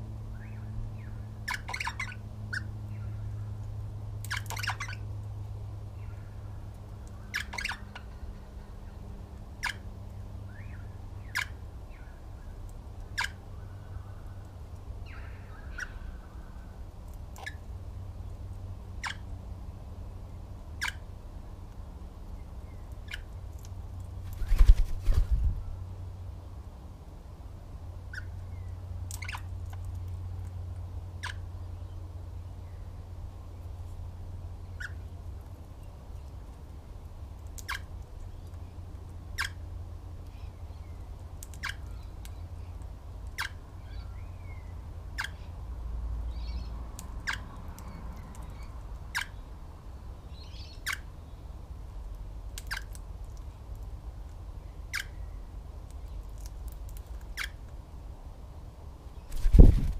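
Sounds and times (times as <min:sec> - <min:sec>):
steady low hum: 0:00.0 - 0:59.9
faint bird chirps: 0:06.0 - 0:09.0
birds calling sharply: 0:07.0 - 0:09.0.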